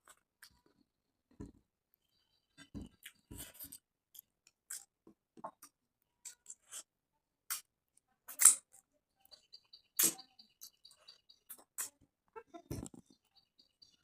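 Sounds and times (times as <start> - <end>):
lip smacks: 10.0 - 10.2.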